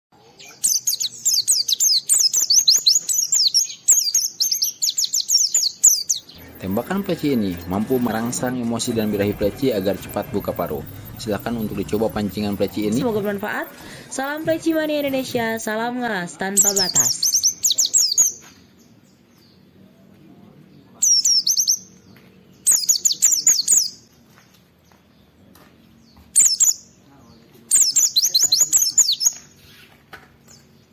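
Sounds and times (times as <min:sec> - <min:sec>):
white-eye twittering song: 0:00.4 - 0:15.7
bird singing high chirps: 0:00.4 - 0:15.8, 0:16.5 - 0:19.6, 0:21.0 - 0:24.1, 0:26.0 - 0:29.9.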